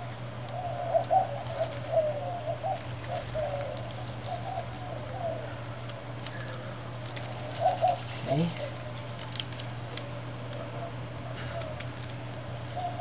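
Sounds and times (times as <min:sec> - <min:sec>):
steady low hum: 0:00.0 - 0:13.0
low wavering cooing: 0:00.4 - 0:09.1, 0:10.0 - 0:12.0, 0:12.6 - 0:13.0
light crackles: 0:02.7 - 0:04.8, 0:05.8 - 0:10.7, 0:11.3 - 0:12.6.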